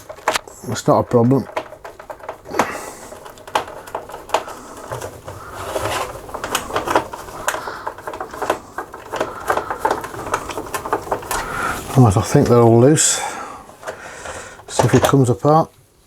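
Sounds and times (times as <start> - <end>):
screwdriver clicking on screws: 0.0 - 12.8
rough scraping: 0.0 - 15.3.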